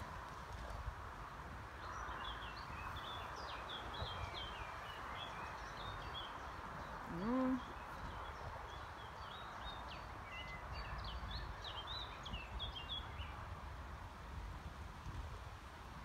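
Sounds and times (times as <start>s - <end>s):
small birds chirping: 1.8s - 13.4s.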